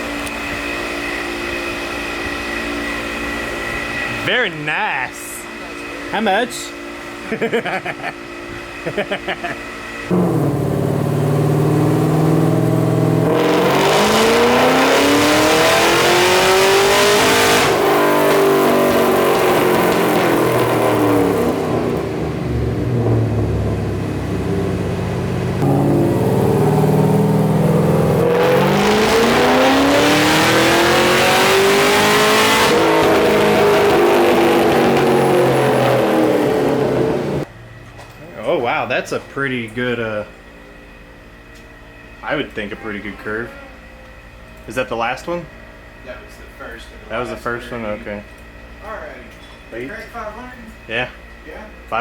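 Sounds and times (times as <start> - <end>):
car engine revving: 9.9 - 37.5.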